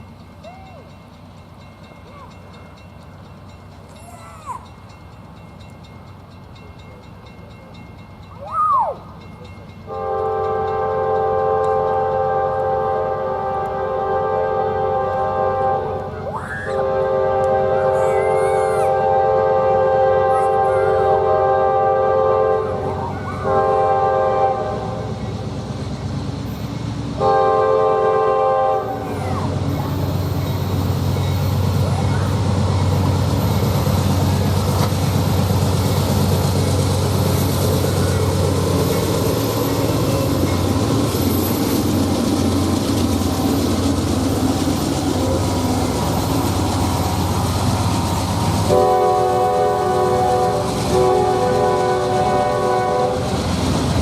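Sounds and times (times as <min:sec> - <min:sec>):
train rolling past: 0:00.0 - 0:54.0
locomotive air horn blasts: 0:09.9 - 0:18.1, 0:18.9 - 0:25.2, 0:27.2 - 0:29.1, 0:45.2 - 0:45.8, 0:48.6 - 0:53.4.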